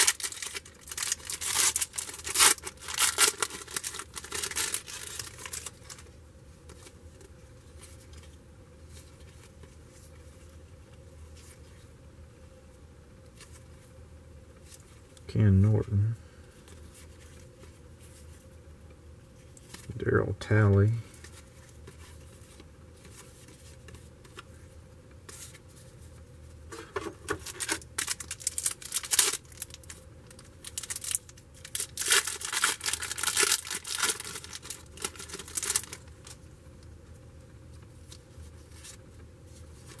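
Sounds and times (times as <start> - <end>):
wrapper tearing and crinkling: 0.0 - 6.1, 27.3 - 36.4.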